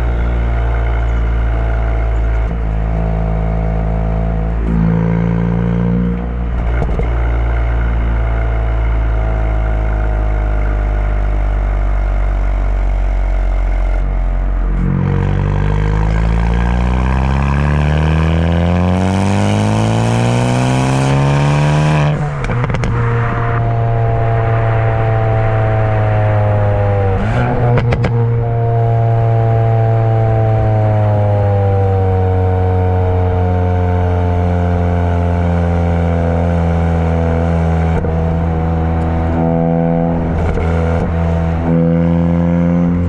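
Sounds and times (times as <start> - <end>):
car engine revving: 0.0 - 43.0
exhaust crackles and pops: 6.1 - 8.9, 22.0 - 28.3.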